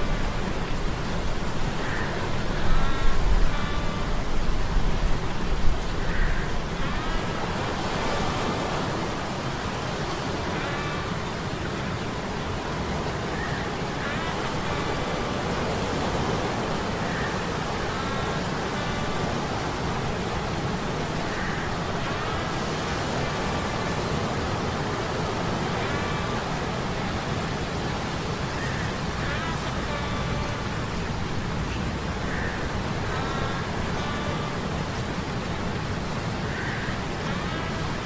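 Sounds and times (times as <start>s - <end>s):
wind: 0.0s - 38.0s.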